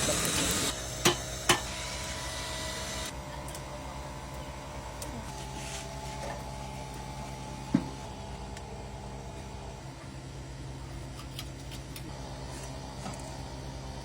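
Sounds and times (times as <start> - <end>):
small motor humming: 0.0 - 9.8.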